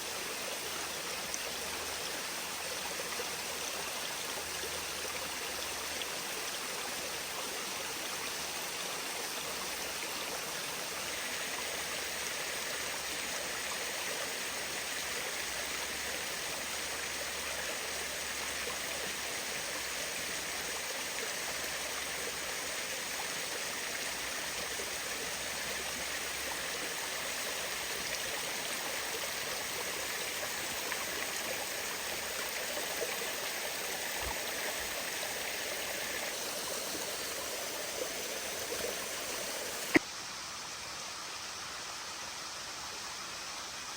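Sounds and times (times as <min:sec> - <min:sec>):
water rushing over waterfall: 0:33.6 - 0:40.0.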